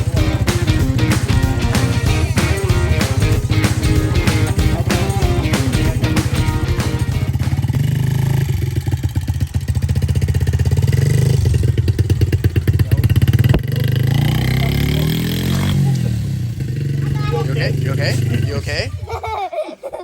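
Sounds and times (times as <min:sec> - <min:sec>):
small motorbike engine running: 0:00.0 - 0:19.4
sharp knock: 0:13.4 - 0:13.8.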